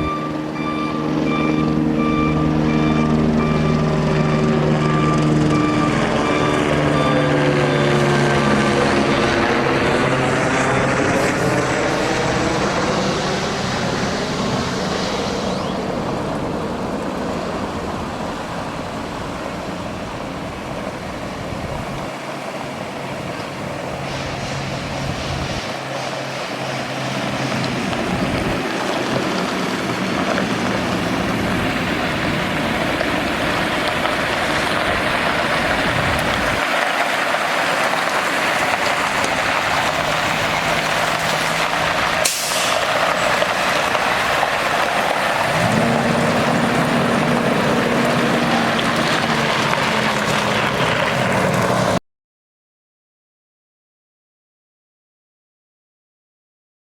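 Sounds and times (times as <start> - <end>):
diesel truck engine running: 0.0 - 52.0
steady rushing hiss: 11.2 - 17.0, 23.2 - 43.1.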